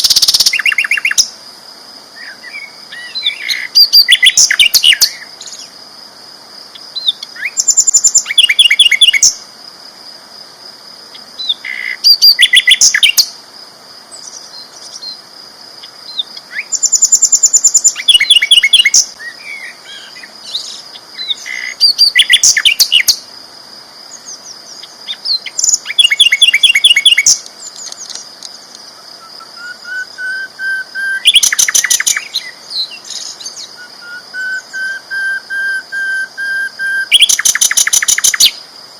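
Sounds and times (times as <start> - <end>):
bird chirping in fast bursts: 7.0 - 9.4, 16.1 - 19.2, 20.0 - 23.2, 24.2 - 28.2, 29.2 - 38.6.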